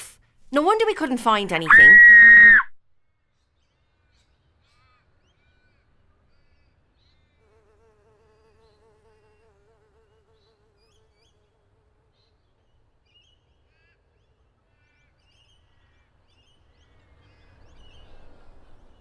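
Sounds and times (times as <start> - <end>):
fly buzzing: 7.4 - 12.1.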